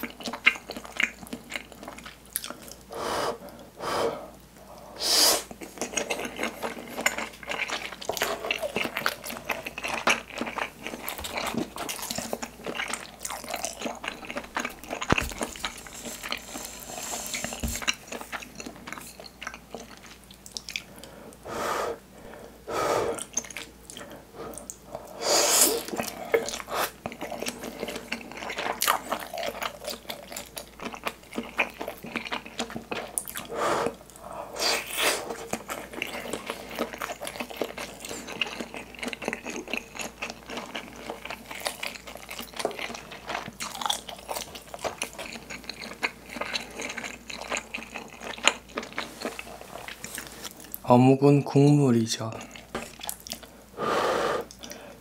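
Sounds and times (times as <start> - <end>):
chewing and biting: 0.0 - 2.9, 5.5 - 21.1, 25.8 - 50.8, 52.4 - 53.5
small mouth clicks and smacks: 19.5 - 21.1, 54.5 - 54.8.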